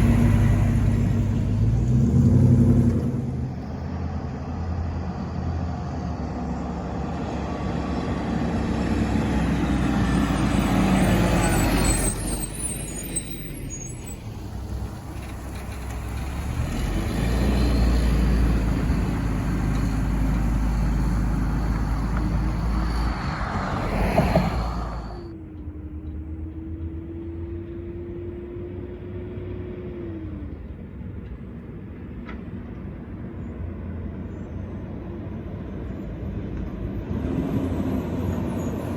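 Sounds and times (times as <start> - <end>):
garbage trucks driving past: 0.0 - 28.3, 30.4 - 38.9
air brakes hissing: 21.6 - 25.3.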